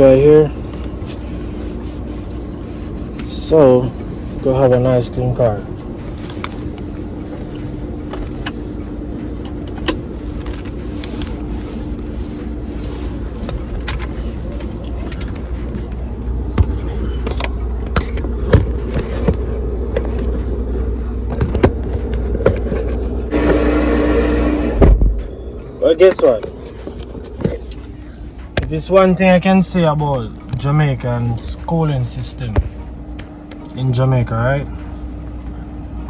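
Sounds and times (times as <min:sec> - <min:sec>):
car rumbling: 0:02.6 - 0:31.3.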